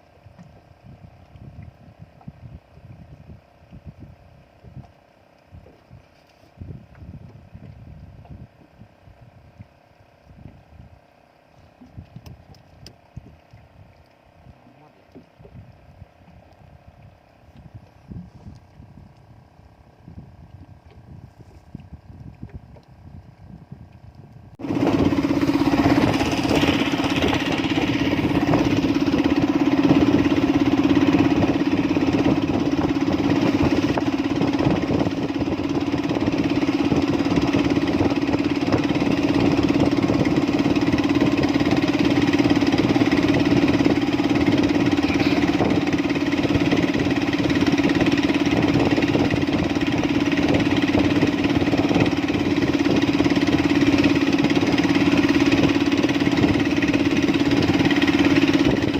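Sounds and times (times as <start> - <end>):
engine humming steadily: 0.0 - 58.9.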